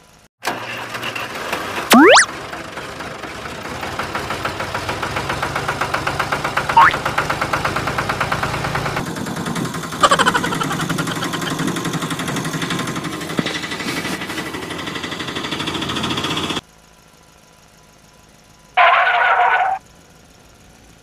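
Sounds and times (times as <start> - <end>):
engine with falling whine: 16.6 - 21.0.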